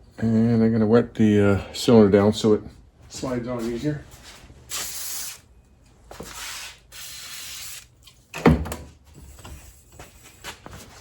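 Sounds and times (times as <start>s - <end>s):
spray hissing: 4.7s - 5.5s, 6.3s - 7.9s.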